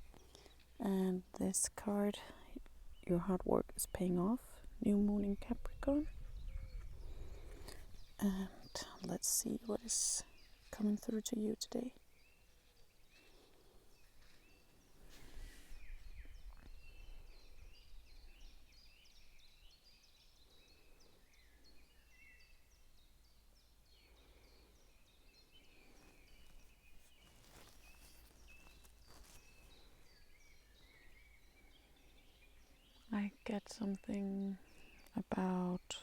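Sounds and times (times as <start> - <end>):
small birds chirping: 0.0 - 36.0
soft rustles: 13.1 - 16.8, 25.8 - 30.3.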